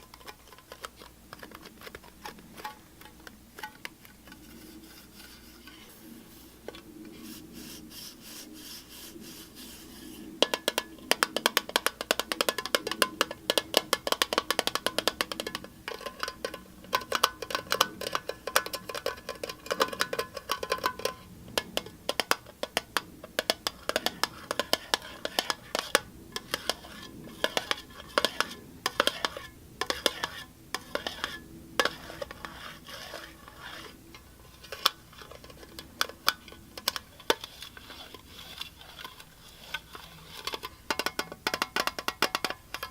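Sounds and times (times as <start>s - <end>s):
fast tapping on hard object: 10.4s - 33.2s, 40.4s - 42.9s.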